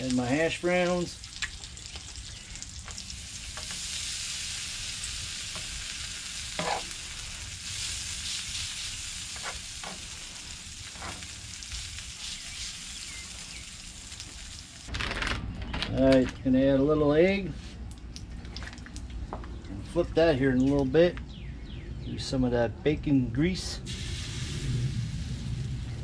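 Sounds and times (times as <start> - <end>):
food sizzling on a griddle: 0.0 - 14.9, 23.9 - 26.0.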